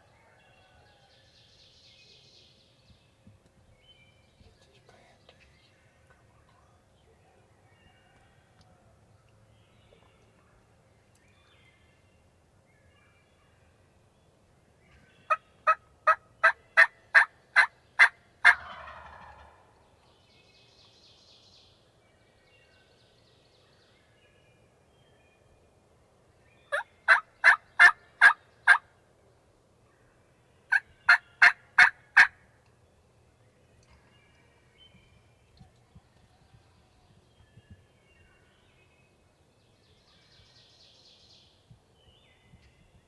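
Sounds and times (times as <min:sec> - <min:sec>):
turkey gobble: 0:15.3 - 0:19.7, 0:26.7 - 0:28.8, 0:30.7 - 0:32.4
turkey yelping: 0:26.7 - 0:28.8, 0:30.7 - 0:32.3.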